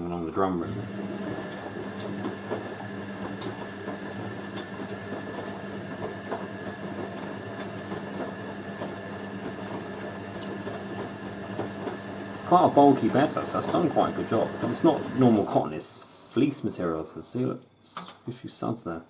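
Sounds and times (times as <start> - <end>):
motor hum: 0.6 - 15.5
washing machine tumbling bedding: 0.6 - 15.6.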